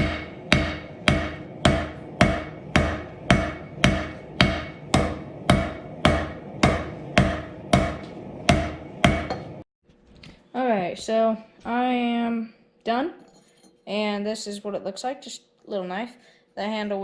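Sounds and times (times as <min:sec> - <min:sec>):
hammer striking steel on anvil: 0:00.0 - 0:09.6.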